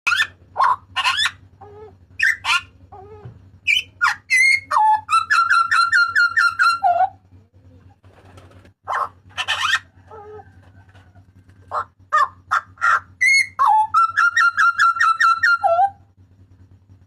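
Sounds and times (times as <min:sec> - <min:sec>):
bird calling loudly: 0:00.1 - 0:07.2, 0:08.8 - 0:10.5, 0:11.7 - 0:16.0.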